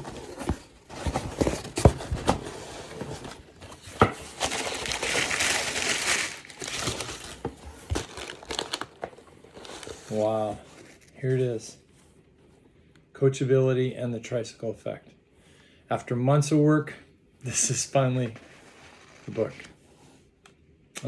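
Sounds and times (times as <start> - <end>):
packaging rustling: 0.0 - 11.2
package being torn open: 4.2 - 10.3.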